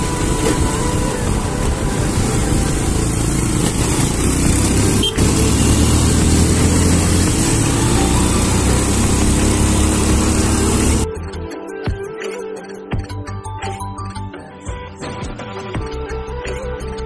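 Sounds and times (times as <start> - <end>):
continuous noisy rush: 0.0 - 11.1
motorcycle engine running: 0.0 - 11.4.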